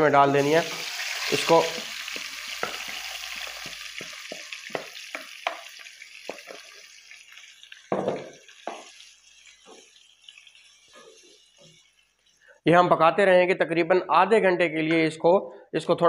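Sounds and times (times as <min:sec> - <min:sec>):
chicken sizzling in a pot: 0:00.0 - 0:12.7
wooden spoon knocking pot: 0:02.1 - 0:06.7, 0:07.9 - 0:08.9.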